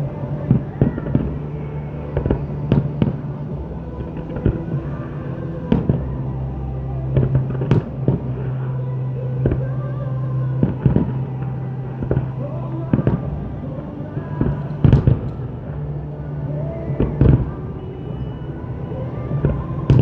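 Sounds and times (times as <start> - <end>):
steady low hum: 0.0 - 20.0
fireworks bangs and crackles: 7.1 - 20.0.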